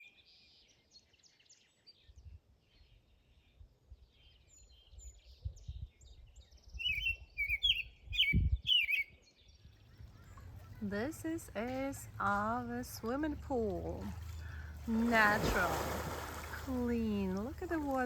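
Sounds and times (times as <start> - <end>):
songbirds chirping: 0.0 - 18.0
bird singing slurred phrases: 4.2 - 18.0.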